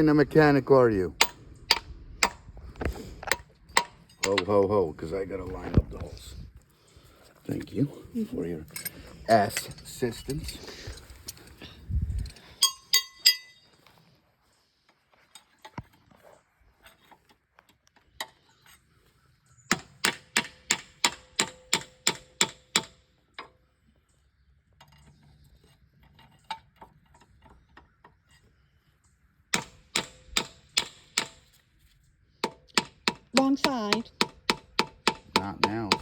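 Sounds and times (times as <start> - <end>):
hammer clanging on steel: 1.2 - 2.4, 3.2 - 4.6, 12.6 - 13.7, 32.4 - 36.0.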